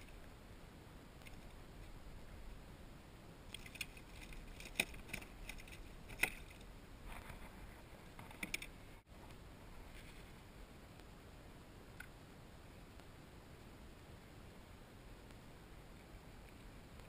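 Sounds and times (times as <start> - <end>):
low steady hiss: 0.0 - 17.0
metal tackle clicking and rattling: 3.5 - 6.6, 8.2 - 8.8.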